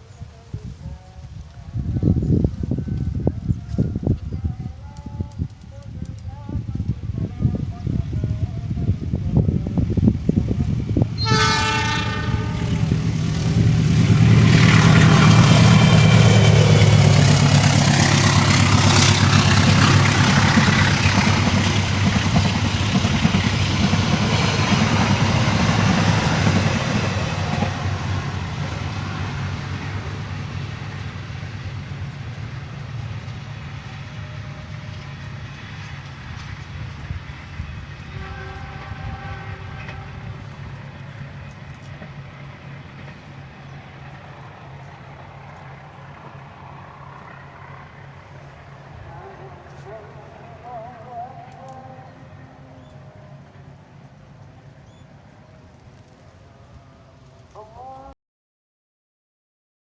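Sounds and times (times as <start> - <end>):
train passing rumble: 0.0 - 58.1
train horn: 11.2 - 13.2, 26.2 - 30.0, 38.0 - 40.8.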